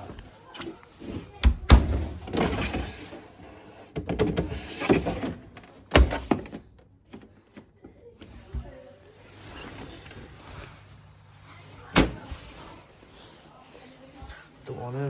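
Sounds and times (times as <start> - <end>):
washing machine knocks and clatter: 1.4 - 3.1, 3.9 - 7.3.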